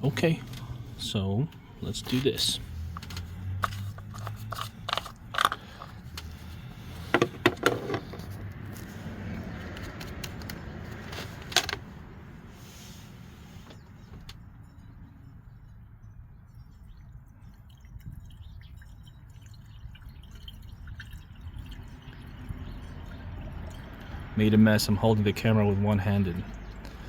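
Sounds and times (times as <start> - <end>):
plastic bottle clicks and scrapes: 2.8 - 8.9.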